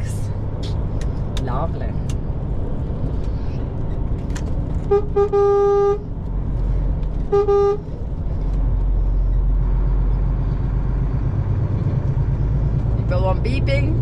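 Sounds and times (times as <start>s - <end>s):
diesel engine running: 0.0s - 14.0s
truck horn blasts: 4.8s - 6.1s, 7.3s - 7.9s.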